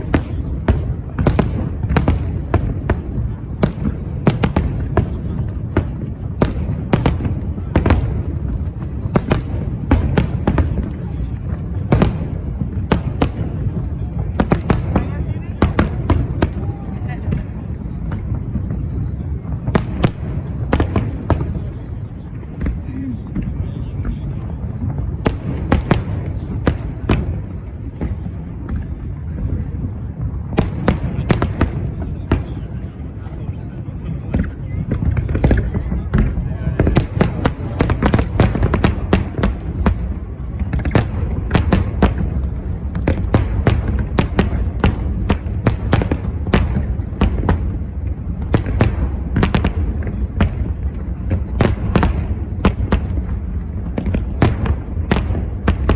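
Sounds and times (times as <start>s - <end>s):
fireworks bangs: 0.0s - 55.9s.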